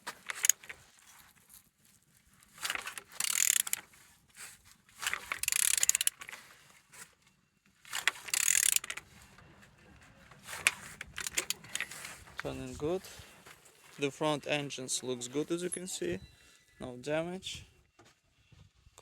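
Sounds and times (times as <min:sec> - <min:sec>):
engine crankshaft clattering: 0:00.0 - 0:00.7, 0:02.7 - 0:03.8, 0:05.0 - 0:06.3, 0:07.9 - 0:09.4, 0:10.4 - 0:12.6
ratchet wrench ratcheting: 0:00.1 - 0:00.7, 0:02.7 - 0:03.9, 0:05.0 - 0:06.4, 0:07.9 - 0:09.0, 0:10.6 - 0:11.9.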